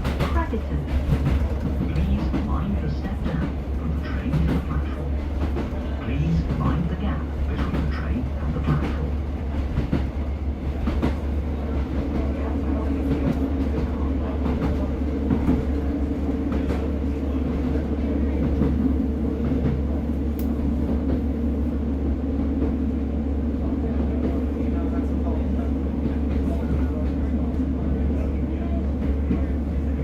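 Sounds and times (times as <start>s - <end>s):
train wheels clicking on track: 0.0s - 21.4s
diesel train engine drone: 0.0s - 30.0s.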